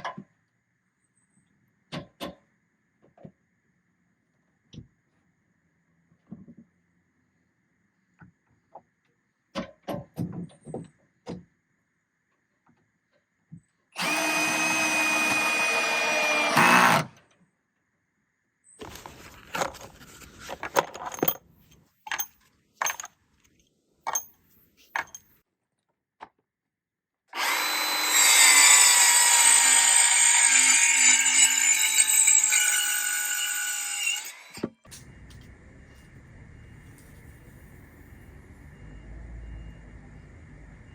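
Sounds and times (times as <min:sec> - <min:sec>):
power tool motor whining: 0:14.0 - 0:17.1, 0:27.4 - 0:34.6.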